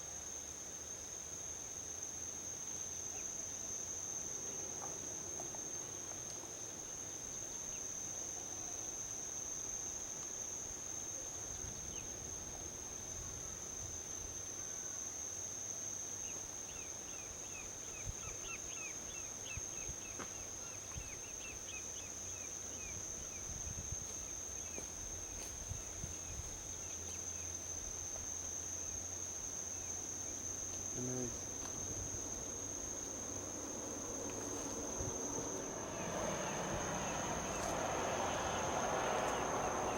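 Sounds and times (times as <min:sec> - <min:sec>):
crickets trilling: 0:00.0 - 0:39.9
distant highway traffic rumble: 0:31.3 - 0:39.9.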